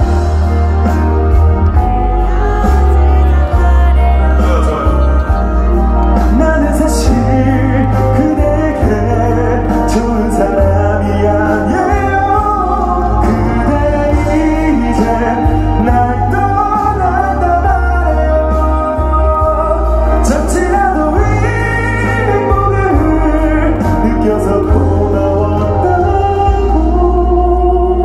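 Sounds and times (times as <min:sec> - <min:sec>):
audience singing along: 0:00.0 - 0:28.0
live pop ballad accompaniment: 0:00.0 - 0:28.0
steady bass: 0:00.0 - 0:28.0.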